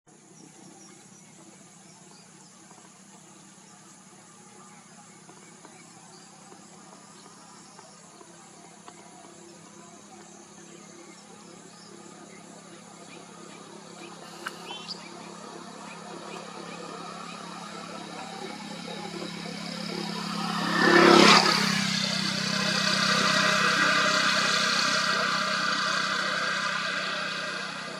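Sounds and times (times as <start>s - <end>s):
insects humming: 0.1s - 27.9s
insect chirps: 0.2s - 27.9s
sharp click: 14.4s - 14.9s.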